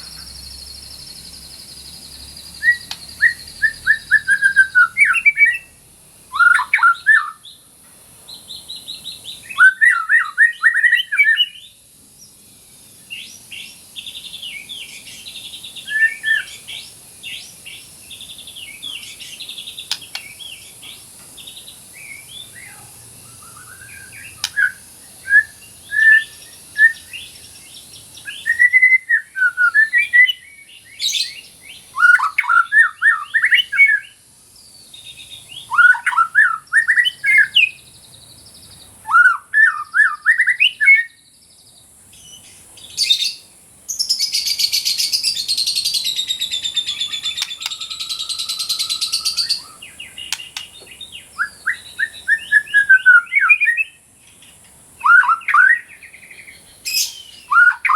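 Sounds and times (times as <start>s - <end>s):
bird singing whistled notes: 0.0s - 7.7s, 8.3s - 57.9s
steady high hiss: 0.0s - 57.9s
harsh bird buzzing: 8.3s - 38.6s, 42.2s - 57.9s.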